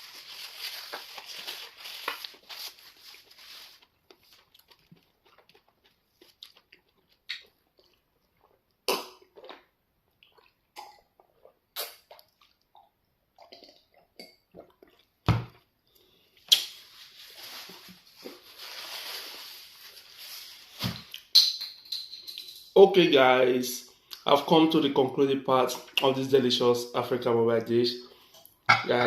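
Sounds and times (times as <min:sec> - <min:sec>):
eating by hand smacks: 0:04.1 - 0:08.0.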